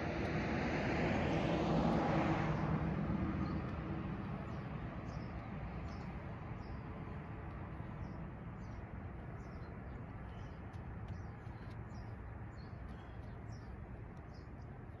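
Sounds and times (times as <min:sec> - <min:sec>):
small bird chirping: 0:07.7 - 0:15.0.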